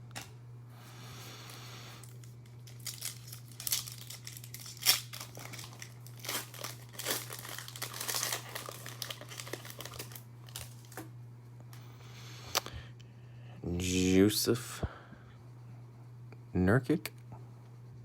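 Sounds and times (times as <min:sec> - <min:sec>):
foil wrapper tearing and crinkling: 0:02.0 - 0:11.0
foil wrapper sharp snap: 0:02.6 - 0:11.0.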